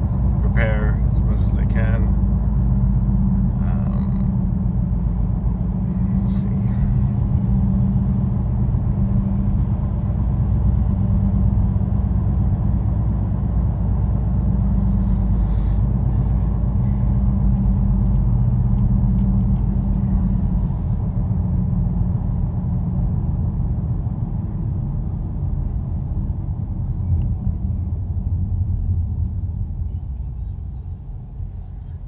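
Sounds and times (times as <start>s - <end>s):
car engine and road noise: 0.0s - 32.0s.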